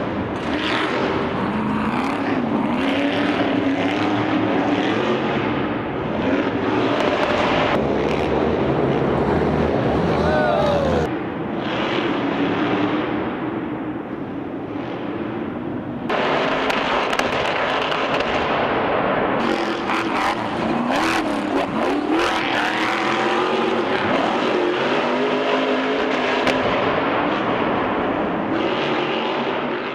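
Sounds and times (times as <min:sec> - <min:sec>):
truck engines revving: 0:00.0 - 0:29.9.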